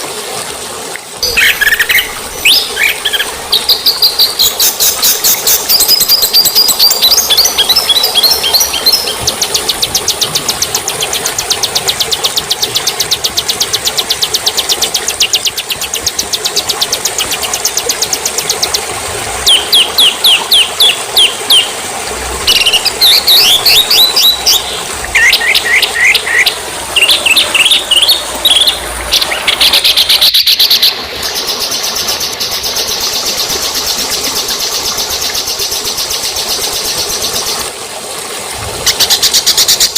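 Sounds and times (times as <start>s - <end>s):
songbirds trilling: 1.2s - 14.4s, 22.4s - 33.6s.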